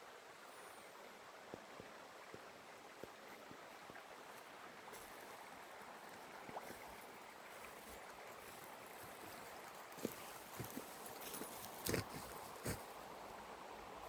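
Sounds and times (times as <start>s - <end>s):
flowing river water: 0.0s - 14.0s.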